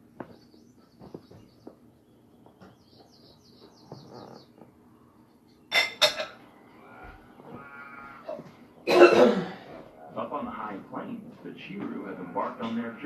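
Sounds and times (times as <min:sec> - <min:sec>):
small birds chirping: 0:00.0 - 0:08.8
dishes clinking: 0:05.7 - 0:06.4.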